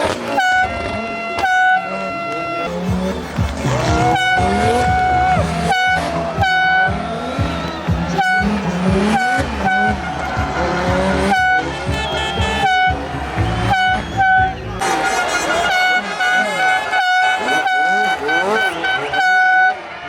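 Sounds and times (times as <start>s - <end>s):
air horn blast: 0.0s - 20.0s
rally car engines revving: 0.0s - 20.0s.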